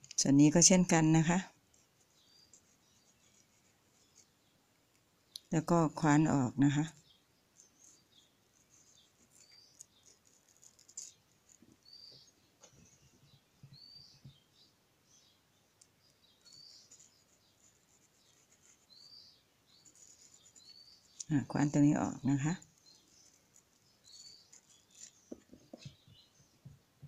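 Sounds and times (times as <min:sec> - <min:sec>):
faint bird chirps: 0:05.3 - 0:26.8.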